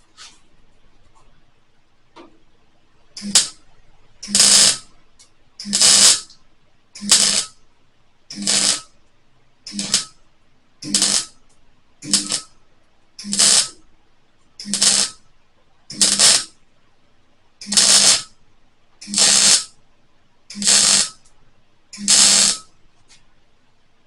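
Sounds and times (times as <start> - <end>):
welder crackling: 3.2 - 3.6, 4.2 - 6.4, 7.0 - 7.6, 8.3 - 9.0, 9.7 - 10.2, 10.8 - 12.6, 13.2 - 13.9, 14.6 - 15.2, 15.9 - 16.6, 17.6 - 18.3, 19.0 - 19.8, 20.5 - 23.2.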